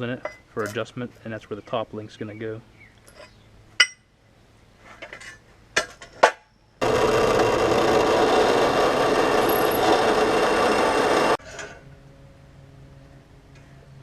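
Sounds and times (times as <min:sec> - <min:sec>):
welding arc burning: 0:06.8 - 0:11.4.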